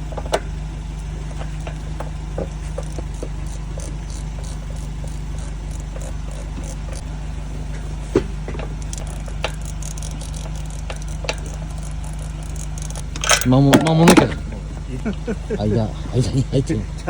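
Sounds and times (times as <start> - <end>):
low mechanical hum: 0.0 - 17.0
tools clicking on metal: 2.6 - 7.1, 8.6 - 14.4.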